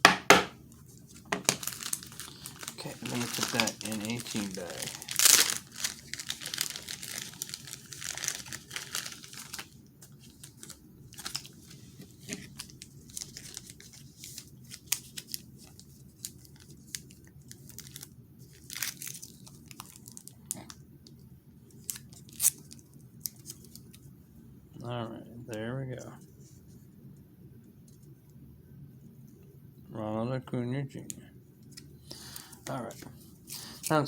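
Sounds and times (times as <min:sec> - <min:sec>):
plastic bag crinkling: 0:01.1 - 0:20.8.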